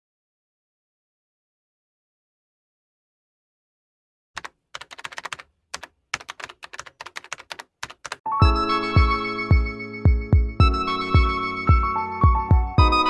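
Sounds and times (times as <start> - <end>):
keyboard typing: 4.4 - 8.2.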